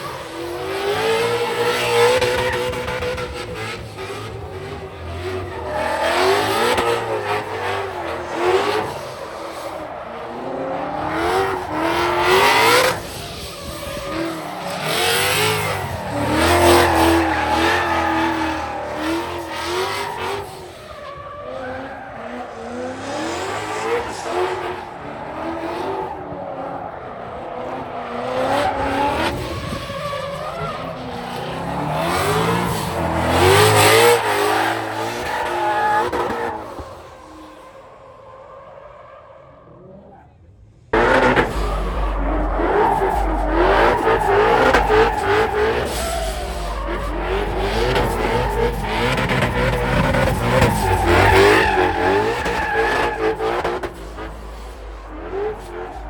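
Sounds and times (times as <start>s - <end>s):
car engines revving: 0.0s - 56.0s
tyres squealing: 41.0s - 56.0s.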